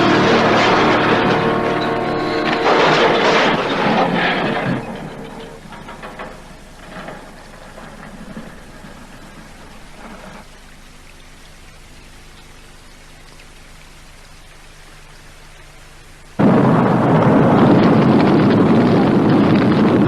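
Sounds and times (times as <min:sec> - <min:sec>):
sudden loud roar: 0:00.0 - 0:05.0, 0:16.4 - 0:20.0
faint steady hum: 0:00.0 - 0:20.0.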